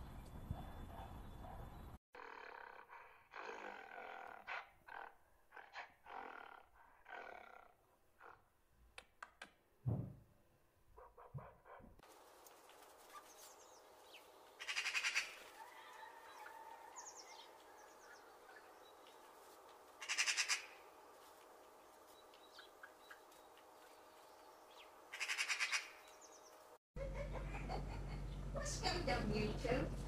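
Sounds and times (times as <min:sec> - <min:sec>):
birds chirping: 0:00.0 - 0:02.0, 0:13.1 - 0:26.8
bird rattling call: 0:14.6 - 0:15.5, 0:20.0 - 0:20.8, 0:25.1 - 0:26.0.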